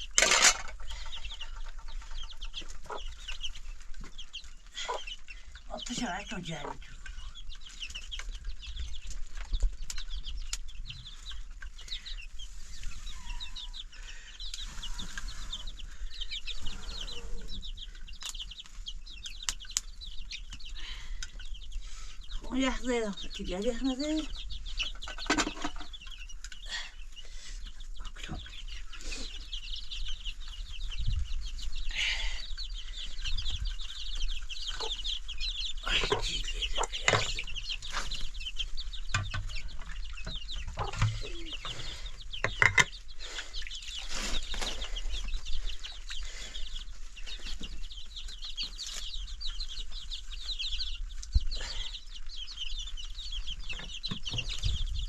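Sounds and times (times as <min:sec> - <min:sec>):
chickens clucking: 0:00.0 - 0:55.0
high-pitched chirping: 0:32.6 - 0:44.4.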